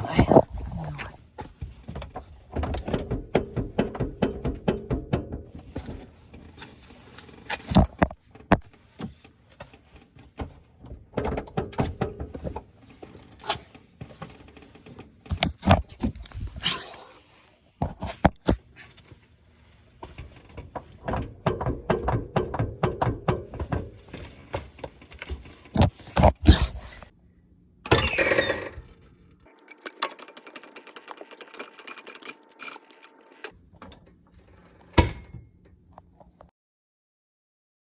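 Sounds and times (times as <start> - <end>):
suspension clicking and knocking: 20.4 - 27.0.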